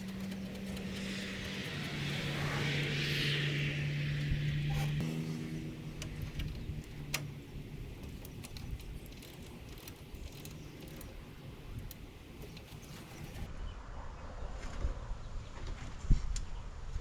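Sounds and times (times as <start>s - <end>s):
low background rumble: 0.0s - 13.5s.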